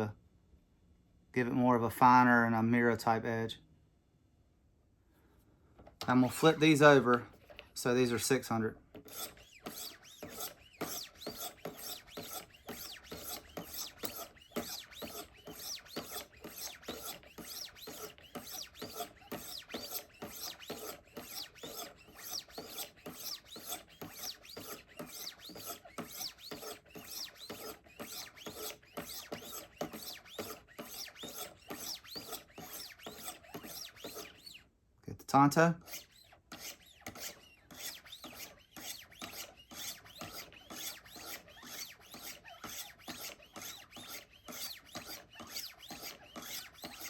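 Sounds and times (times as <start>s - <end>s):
knife scraping on sharpening stones: 9.0s - 34.5s.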